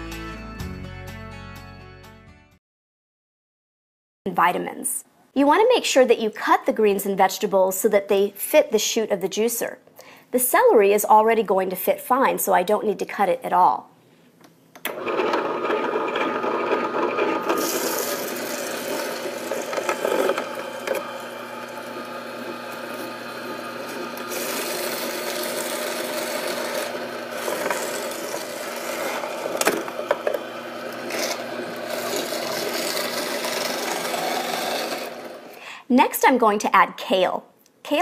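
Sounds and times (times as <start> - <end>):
juicer grinding and crunching celery: 14.9 - 35.6.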